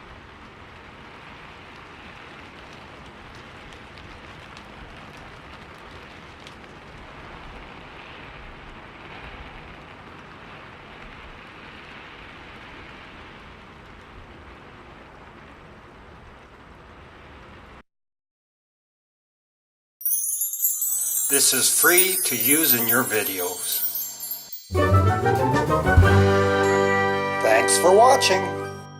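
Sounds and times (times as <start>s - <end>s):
raindrops ticking: 0.0s - 11.8s, 20.6s - 26.2s
steady rain hiss: 0.0s - 17.8s, 20.2s - 28.6s.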